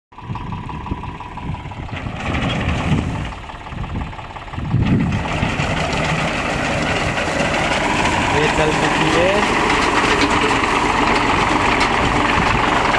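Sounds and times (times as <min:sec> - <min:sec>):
tractor engine running: 0:00.1 - 0:12.9
machine clatter: 0:04.8 - 0:12.9.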